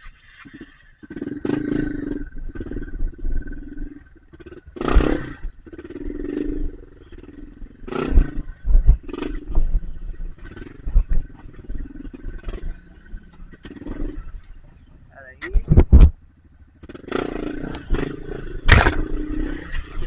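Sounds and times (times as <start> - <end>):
dirt bike engine revving: 0.2 - 15.1, 16.1 - 20.0
heavy thumps: 18.7 - 19.2.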